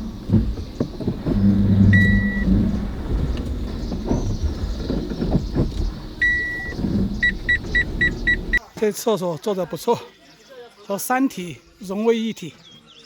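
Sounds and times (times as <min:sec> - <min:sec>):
van engine running low: 0:00.0 - 0:08.6
electronic warning beeps: 0:01.8 - 0:02.5, 0:06.2 - 0:08.6.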